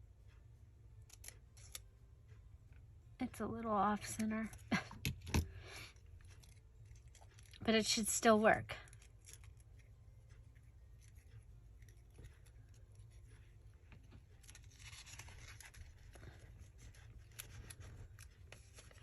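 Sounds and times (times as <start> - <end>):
paper rustling: 11.0 - 19.0.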